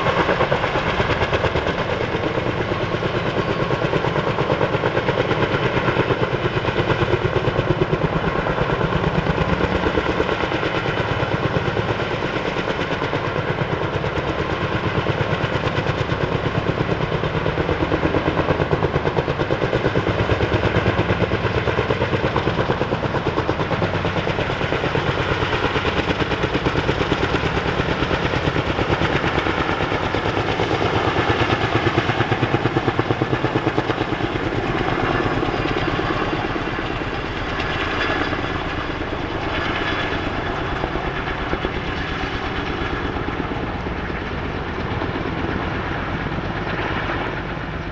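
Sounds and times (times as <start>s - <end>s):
helicopter rotor blades chopping: 0.0s - 47.8s
engine whine: 25.7s - 36.0s.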